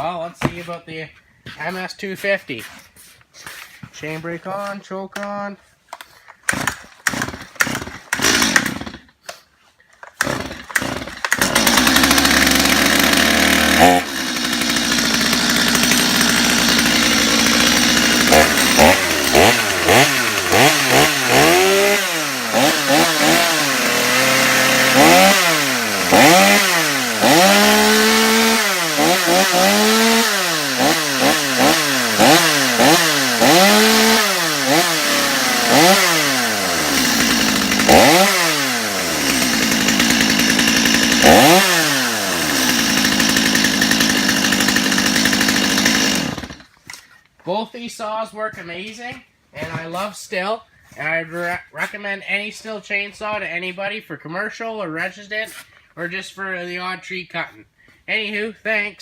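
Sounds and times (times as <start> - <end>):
chainsaw starter cord pulls: 5.9 - 47.3
chainsaw engine running and revving: 6.5 - 9.0, 10.2 - 46.6.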